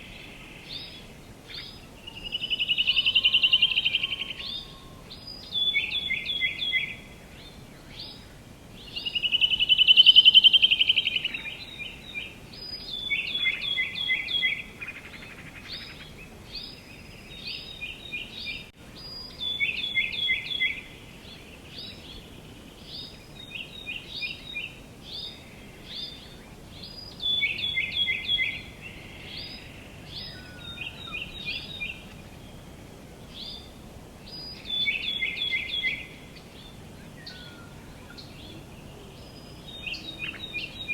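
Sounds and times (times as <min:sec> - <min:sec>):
songbirds singing: 0:00.0 - 0:40.9
bird trill: 0:02.1 - 0:07.0.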